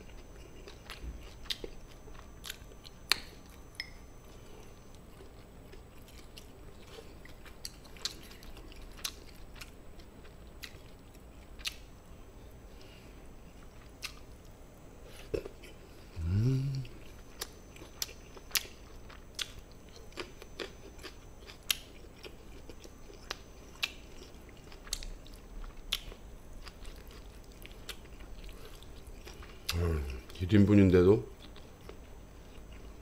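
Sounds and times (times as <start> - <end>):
chewing and mouth sounds: 0.0 - 11.9, 13.6 - 14.5, 15.1 - 30.5, 31.3 - 33.0
rising voice hum: 15.3 - 17.6, 29.7 - 30.4.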